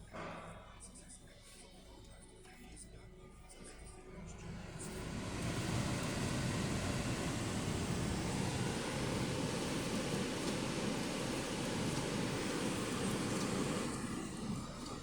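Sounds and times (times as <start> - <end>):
car engine running: 4.2 - 15.0.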